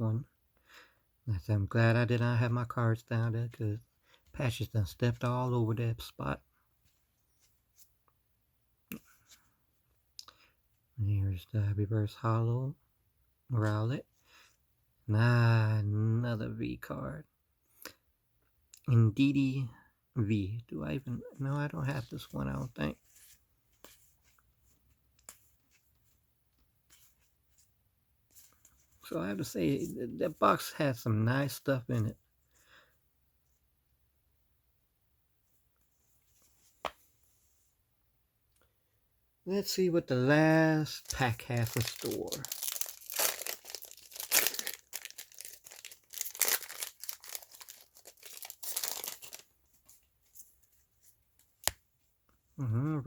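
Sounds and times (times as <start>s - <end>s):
foil wrapper crinkling and tearing: 40.8s - 49.5s
trading cards clicking and rustling: 41.0s - 50.0s.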